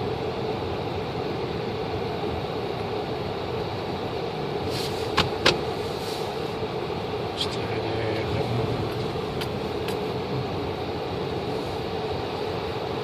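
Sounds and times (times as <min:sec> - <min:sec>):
vehicle engine running: 0:04.4 - 0:13.0.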